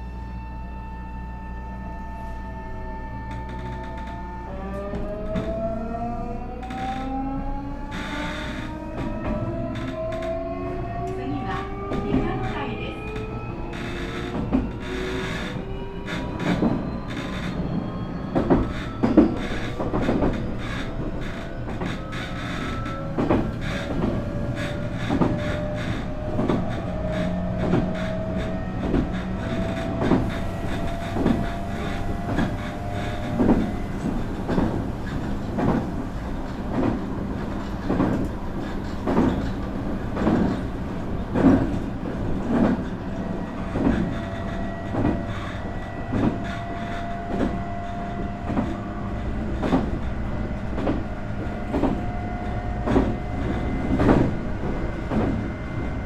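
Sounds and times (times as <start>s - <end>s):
train motor whine: 0.0s - 56.0s
wheels clicking over rail joints: 18.4s - 56.0s.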